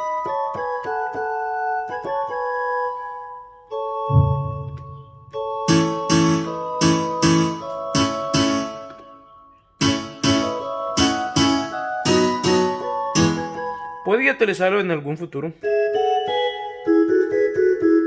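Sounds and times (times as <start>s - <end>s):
keyboard chords: 0.0s - 14.1s.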